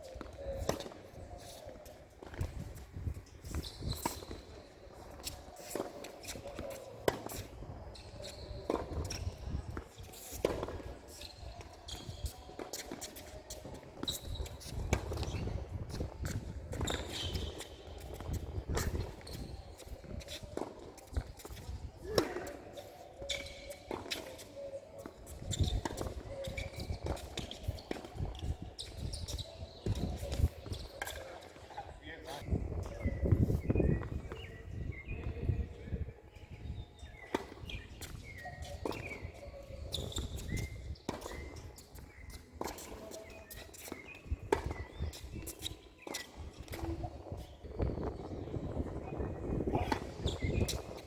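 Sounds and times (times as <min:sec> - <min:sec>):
footsteps shuffling on court: 0:00.0 - 0:51.0
shoe squeaks: 0:00.0 - 0:51.0
tennis ball hit and bouncing: 0:03.4 - 0:07.5.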